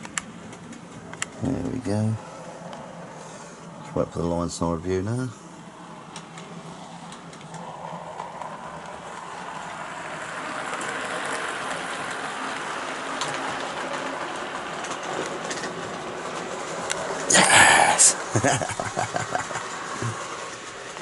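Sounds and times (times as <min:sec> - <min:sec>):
model train whirring rumble: 0:01.4 - 0:18.4, 0:19.3 - 0:21.0
faint clicks over rail joints: 0:10.7 - 0:17.1.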